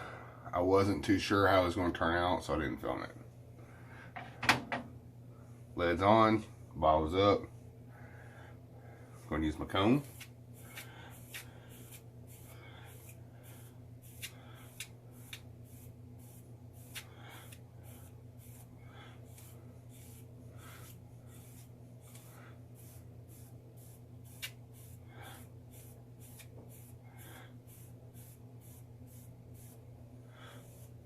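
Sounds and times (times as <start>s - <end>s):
comb scratching through beard: 9.7s - 29.8s.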